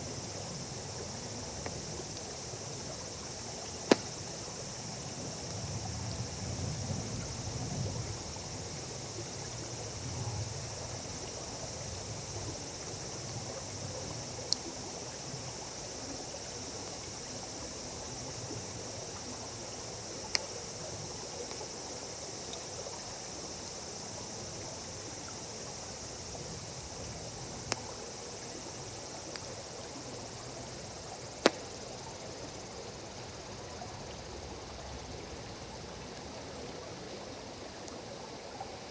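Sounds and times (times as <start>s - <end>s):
insects chirping: 0.0s - 38.9s
campfire crackling and popping: 3.8s - 4.2s.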